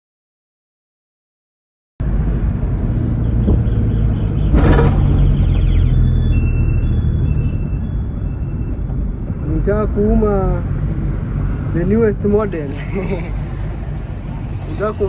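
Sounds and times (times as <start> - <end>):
truck engine running: 2.0 - 7.6.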